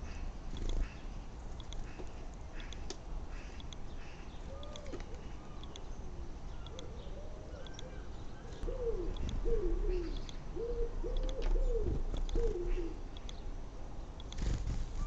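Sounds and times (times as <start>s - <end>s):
pigeon cooing: 6.7s - 13.0s.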